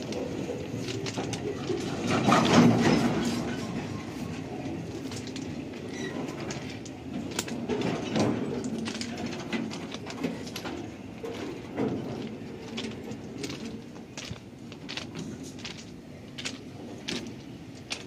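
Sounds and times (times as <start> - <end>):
freight wagons rolling rumble: 0.0 - 18.0.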